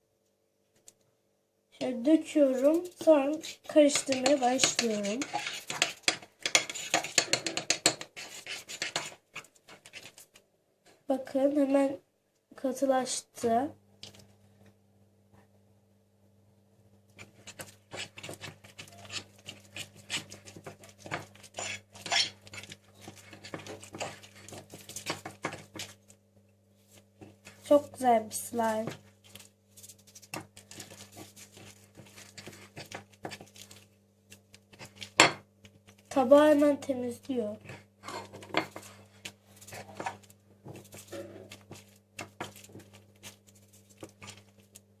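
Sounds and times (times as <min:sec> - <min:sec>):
low electrical hum: 0:00.0 - 0:45.0
spoon stirring slime: 0:01.8 - 0:10.4, 0:17.1 - 0:26.2, 0:26.8 - 0:44.9.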